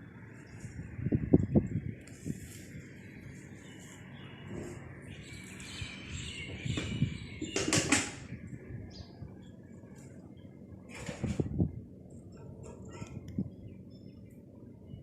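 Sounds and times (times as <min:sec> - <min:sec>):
birds chirping: 0:02.8 - 0:10.6.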